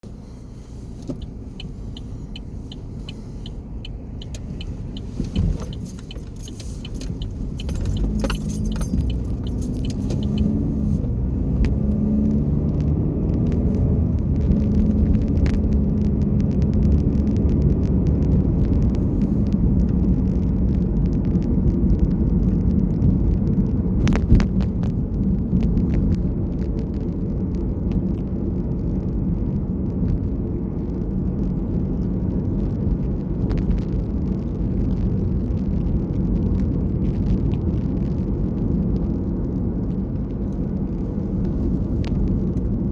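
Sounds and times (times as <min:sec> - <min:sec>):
vehicle engine and road rumble: 0:00.0 - 0:42.9
light rattling clicks: 0:00.9 - 0:12.0.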